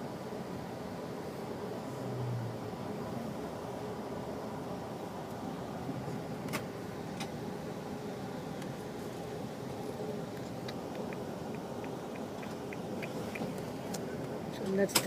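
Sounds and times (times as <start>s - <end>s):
car road noise: 0.0s - 15.0s
light ticks: 10.3s - 14.0s
sharp clicks: 10.4s - 14.0s.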